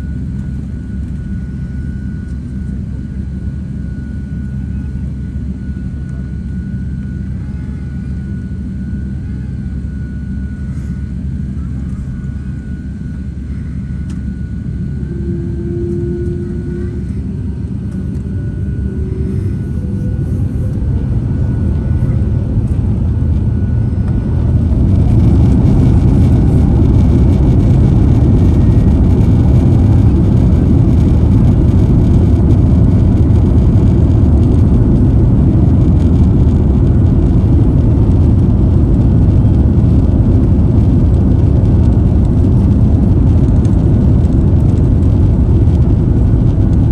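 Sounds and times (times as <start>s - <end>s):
jet engine rumble: 0.0s - 46.9s.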